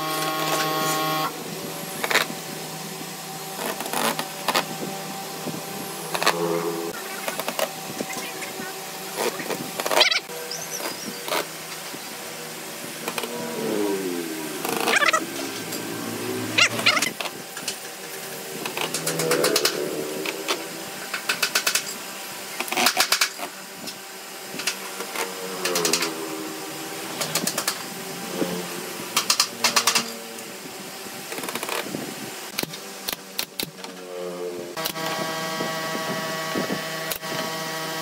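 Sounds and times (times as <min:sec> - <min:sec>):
drill driving screws into wood: 0:00.0 - 0:01.3.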